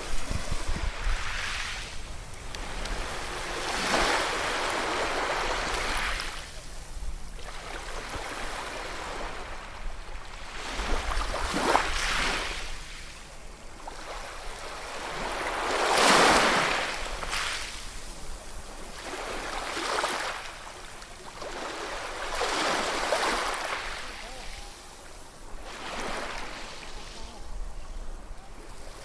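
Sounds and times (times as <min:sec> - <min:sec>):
ocean waves breaking: 0:00.0 - 0:13.1, 0:13.8 - 0:29.0.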